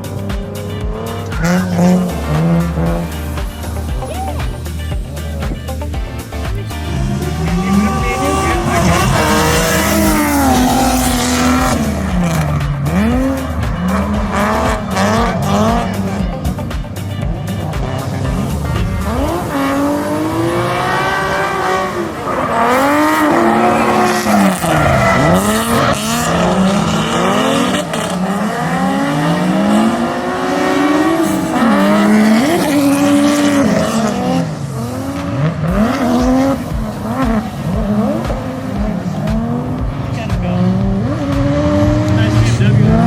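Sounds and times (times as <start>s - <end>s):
car engine revving hard: 0.0s - 43.0s
tyre squeal: 22.2s - 29.7s.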